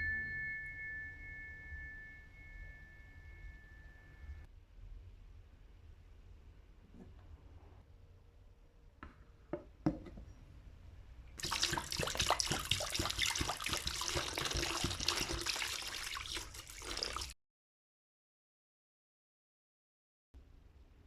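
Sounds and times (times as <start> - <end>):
running water splashing: 11.4 - 17.4.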